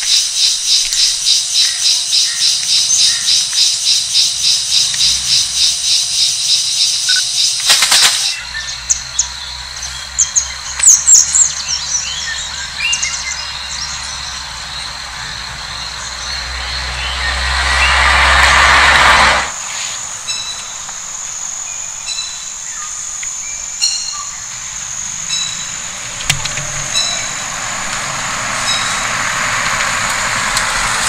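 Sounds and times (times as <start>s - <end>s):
bird chirps: 0.0s - 18.0s, 19.6s - 29.4s
low steady rumble: 13.4s - 31.0s.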